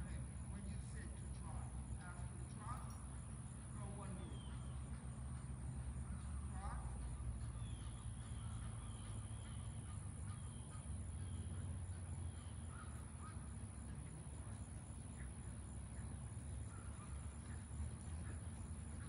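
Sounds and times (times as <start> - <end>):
faint bird calls: 0.0 - 19.0
steady low rumble: 0.0 - 19.0.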